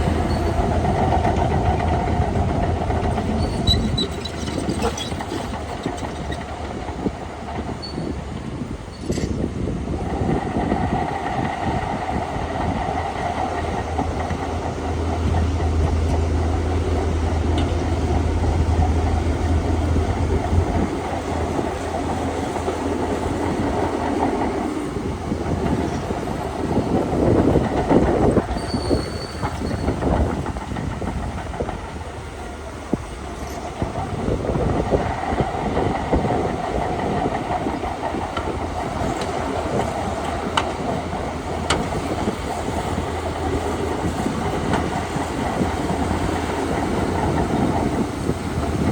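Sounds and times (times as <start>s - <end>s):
bulldozer engine under load: 0.0s - 48.9s
steel tracks clanking: 0.0s - 48.9s.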